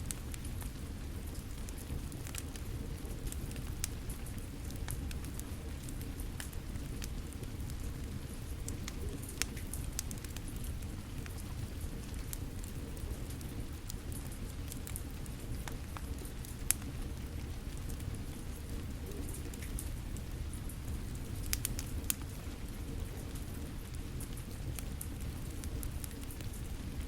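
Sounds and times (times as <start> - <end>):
steady rain: 0.0 - 27.0
wood fire crackling: 0.0 - 27.0
sharp fire pops: 20.8 - 22.3.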